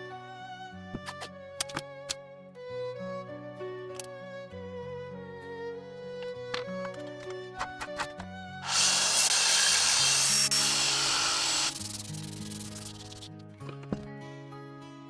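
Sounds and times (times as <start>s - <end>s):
background music: 0.0s - 15.0s
abrasive sanding: 8.6s - 13.3s.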